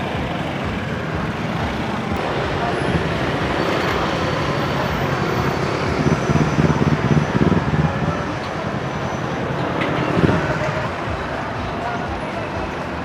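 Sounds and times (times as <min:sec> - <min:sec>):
street traffic noise: 0:00.0 - 0:13.0
vehicle engine rumbling: 0:00.0 - 0:13.0.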